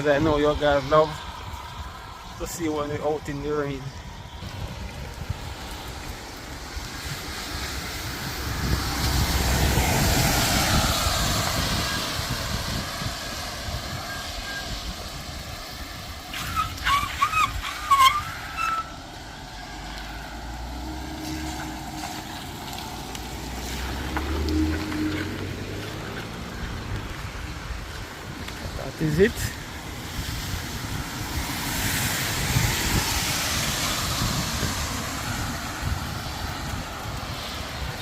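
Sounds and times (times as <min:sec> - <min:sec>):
tyre hiss on wet street: 0:00.0 - 0:38.0
high squeals: 0:16.3 - 0:19.0.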